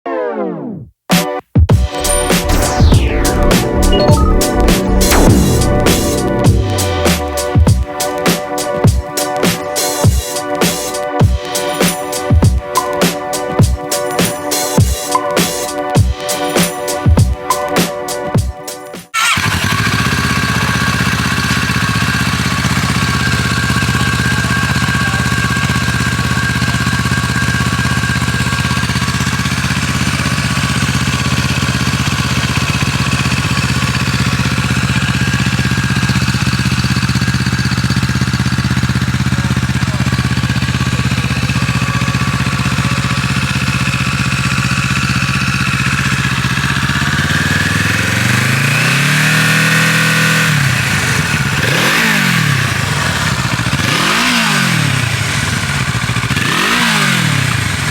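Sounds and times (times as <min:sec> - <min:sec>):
engine revving: 0:01.8 - 0:08.8, 0:19.2 - 0:57.9
motorcycle engine idling: 0:19.2 - 0:57.9.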